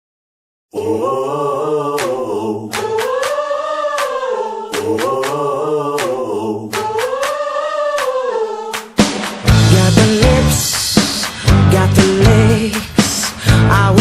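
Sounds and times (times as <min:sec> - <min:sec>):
wordless vocals humming: 0:00.7 - 0:08.9.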